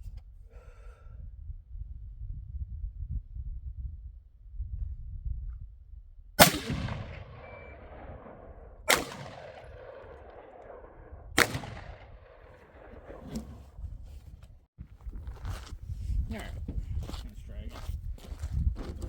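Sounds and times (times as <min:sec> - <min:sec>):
gunshots with rolling echo: 0:06.4 - 0:13.8.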